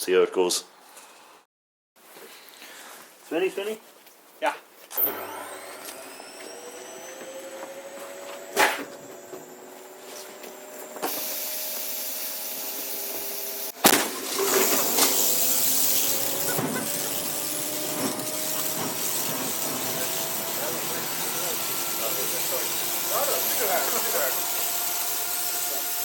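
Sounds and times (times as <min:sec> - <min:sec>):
sharp bang of ignition: 0:08.5 - 0:09.0, 0:13.7 - 0:15.3, 0:16.2 - 0:20.1
washing machine drum whine: 0:10.6 - 0:25.1
noisy rush of turning drum: 0:14.4 - 0:24.3.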